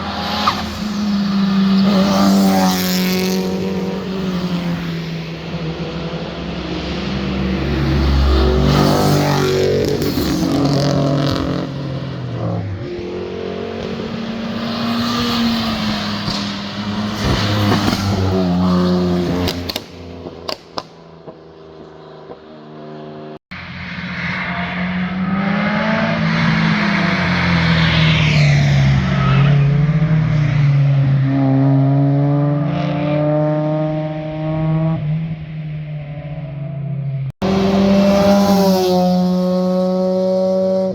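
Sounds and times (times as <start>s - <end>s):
performance cars driving past: 0.0s - 40.9s
sharp exhaust pops: 19.4s - 21.4s.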